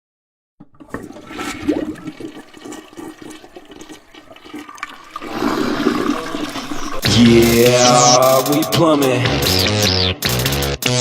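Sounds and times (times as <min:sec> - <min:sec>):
toilet flushing: 0:00.6 - 0:08.7
water trickling and gurgling: 0:00.7 - 0:08.4.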